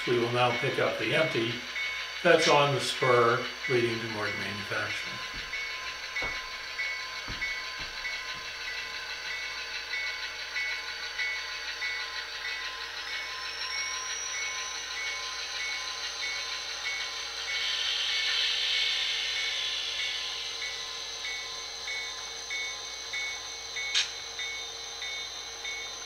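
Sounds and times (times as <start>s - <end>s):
model diesel locomotive sounds: 0.0s - 26.0s
rising whine: 0.0s - 26.0s.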